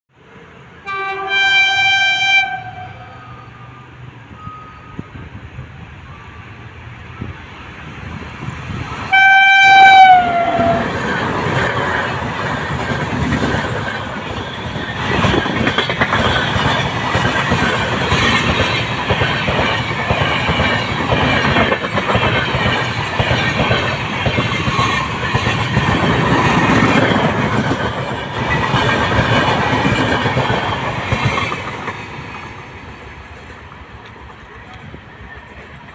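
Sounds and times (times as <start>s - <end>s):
train horn: 0.8s - 3.5s, 9.1s - 10.9s
train wheels clattering over rail joints: 10.5s - 35.9s.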